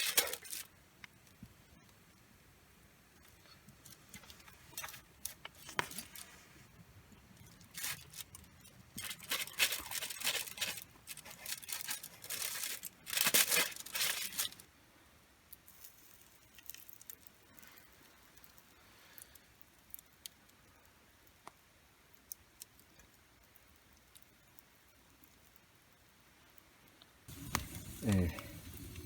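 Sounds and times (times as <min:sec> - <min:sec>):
crinkly packaging rustling: 0:00.0 - 0:00.8, 0:03.2 - 0:14.7.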